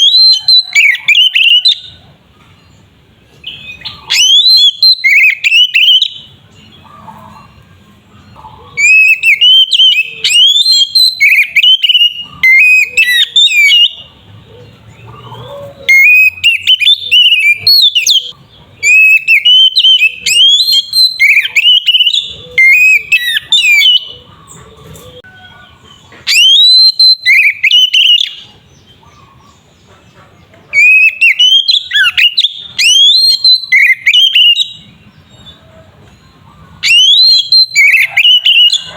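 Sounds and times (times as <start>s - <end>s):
bird singing whistled phrases: 0.0s - 1.9s, 3.4s - 6.3s, 8.8s - 14.1s, 15.9s - 24.2s, 26.3s - 28.5s, 30.7s - 34.9s, 36.8s - 38.9s.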